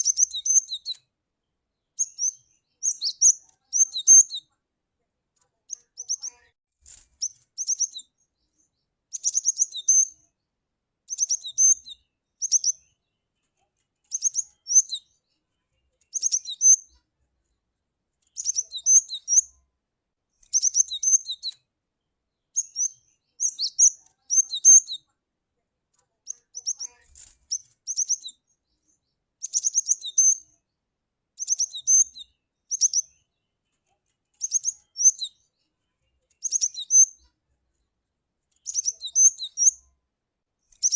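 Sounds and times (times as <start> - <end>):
bird high sharp chirps: 0.0 - 1.1, 2.0 - 4.5, 5.7 - 10.2, 11.1 - 13.0, 14.0 - 15.3, 16.1 - 17.0, 18.3 - 19.6, 20.4 - 21.6, 22.5 - 25.1, 26.2 - 30.6, 31.4 - 33.3, 34.3 - 35.5, 36.2 - 37.3, 38.6 - 39.8, 40.7 - 40.9.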